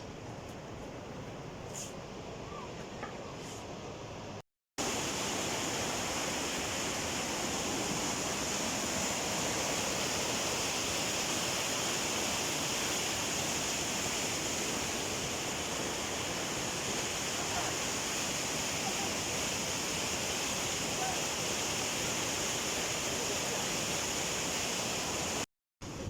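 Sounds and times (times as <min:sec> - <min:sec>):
fast-flowing water rushing: 0:04.8 - 0:25.5.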